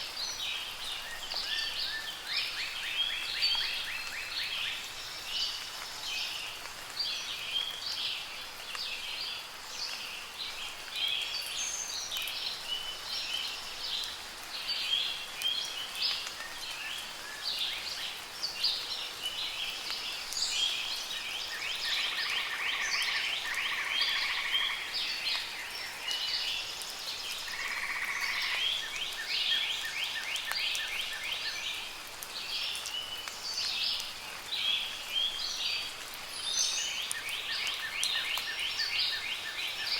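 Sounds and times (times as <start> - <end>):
light rain hiss: 0.0 - 39.9.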